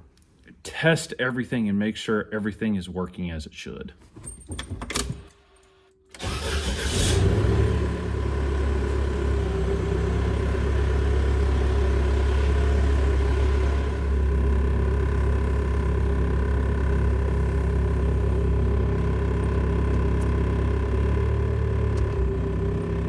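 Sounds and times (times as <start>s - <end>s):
diesel engine starting and idling: 6.1s - 23.0s.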